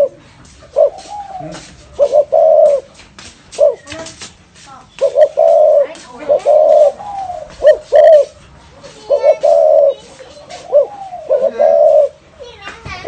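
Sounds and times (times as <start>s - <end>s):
dove cooing: 0.0s - 3.0s, 5.0s - 12.2s.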